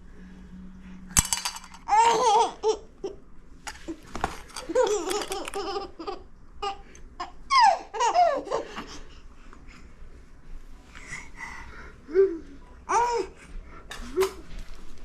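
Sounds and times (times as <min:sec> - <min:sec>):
baby laughing and squealing: 0:04.6 - 0:08.9.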